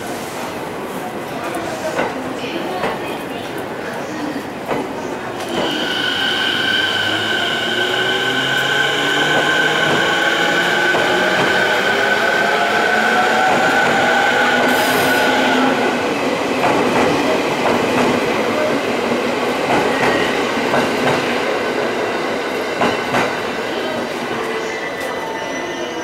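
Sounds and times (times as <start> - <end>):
electric train whine: 5.4 - 16.2.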